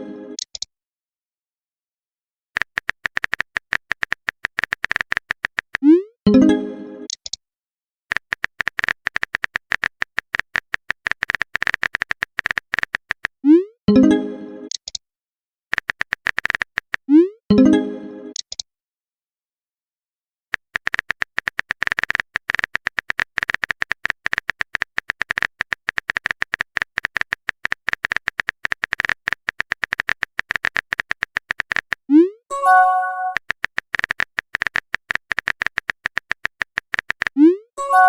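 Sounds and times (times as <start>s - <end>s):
phone keyboard typing clicks: 2.6s - 5.8s, 7.1s - 7.4s, 8.1s - 13.4s, 15.7s - 17.1s, 18.3s - 18.6s, 20.6s - 32.1s, 32.7s - 37.4s
multi-tone message chime: 6.3s - 7.0s, 32.5s - 33.4s, 37.8s - 38.0s.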